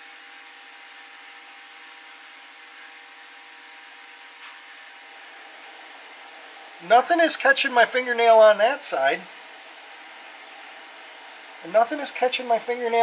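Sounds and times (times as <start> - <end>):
faint constant hum: 0.0 - 13.0
low background hiss: 4.4 - 13.0.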